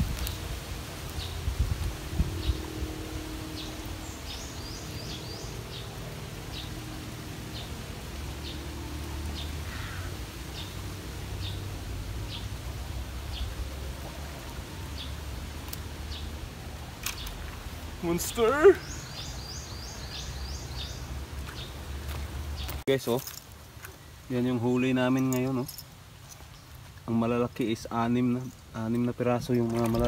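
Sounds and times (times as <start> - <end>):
wind rumble on microphone: 0.0 - 5.4.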